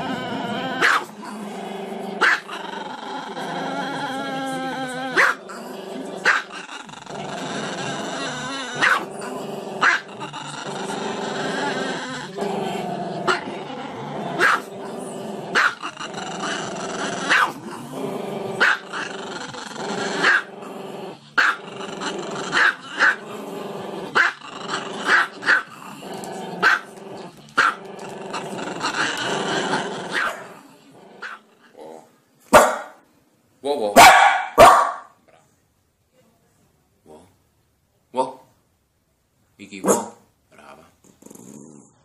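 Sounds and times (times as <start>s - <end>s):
small dog barking: 0.8s - 1.1s, 2.2s - 2.5s, 14.4s - 14.7s, 15.6s - 15.8s, 32.5s - 33.0s, 34.0s - 35.2s, 39.8s - 40.2s.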